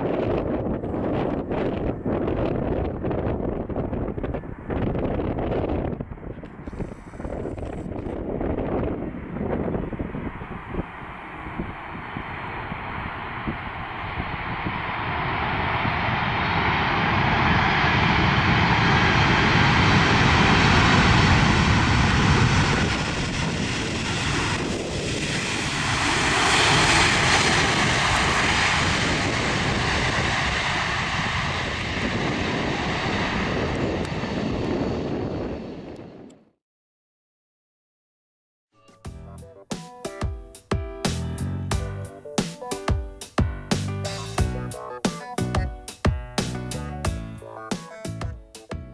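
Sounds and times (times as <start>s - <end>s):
jet engines roaring: 0.0s - 36.3s.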